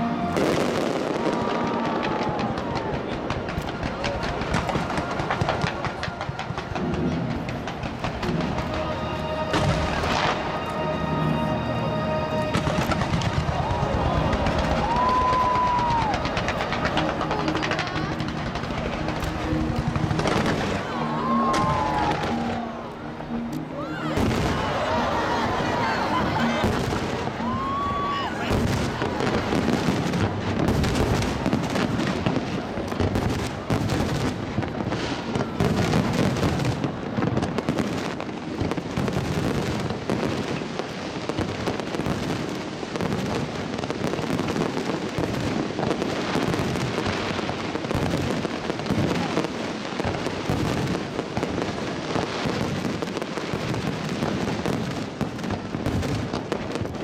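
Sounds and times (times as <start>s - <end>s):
firework bangs and crackling: 0.0s - 11.5s, 12.3s - 57.0s
firework whistle: 0.0s - 11.5s, 12.3s - 18.2s, 18.8s - 32.6s.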